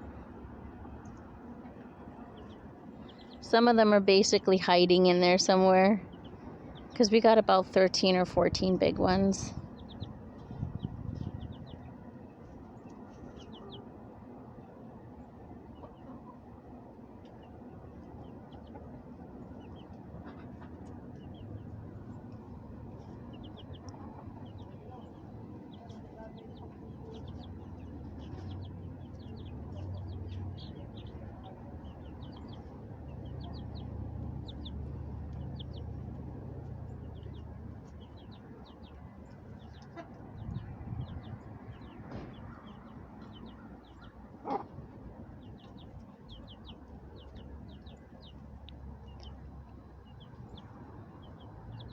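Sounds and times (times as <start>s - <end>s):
chickens chirping: 0.0s - 51.9s
low rumble: 8.0s - 13.8s, 20.8s - 44.0s.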